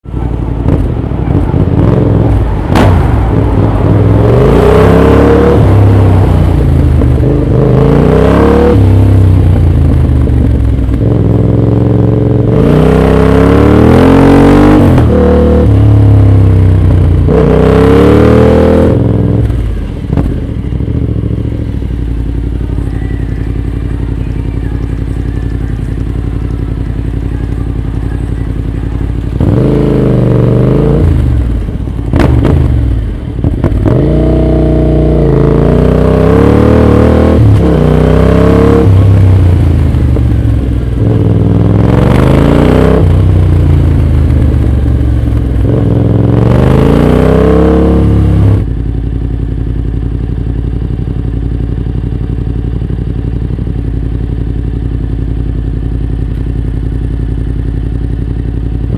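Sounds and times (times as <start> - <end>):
motorcycle engine revving and idling: 0.0 - 58.9.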